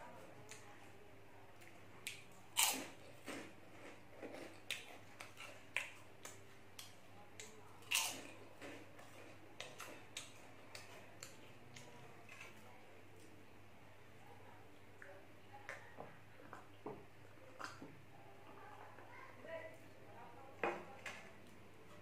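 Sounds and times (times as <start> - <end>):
crunchy snacks being chewed: 1.7 - 7.0, 7.8 - 12.6.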